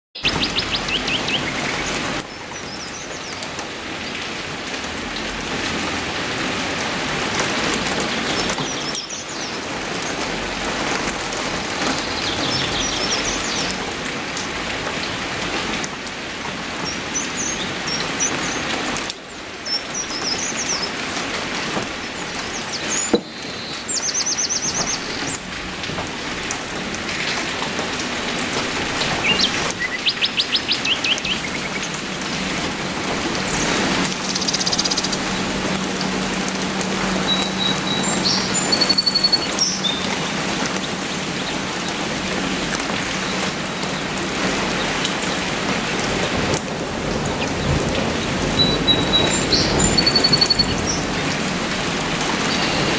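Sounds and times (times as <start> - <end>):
birds trilling: 0.2 - 3.4, 11.9 - 13.8, 29.0 - 45.5, 47.1 - 52.9
steady rain falling: 0.2 - 52.9.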